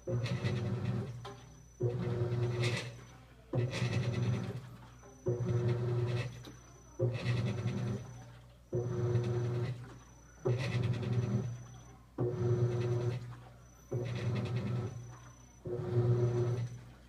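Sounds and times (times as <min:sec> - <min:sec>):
motor humming: 0:00.0 - 0:17.0
washing machine agitating: 0:00.0 - 0:17.0.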